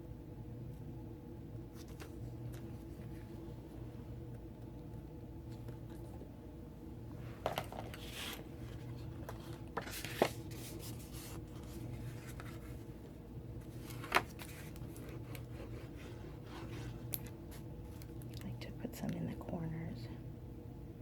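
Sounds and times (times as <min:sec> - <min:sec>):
cardstock sliding and rubbing: 0:07.6 - 0:12.9.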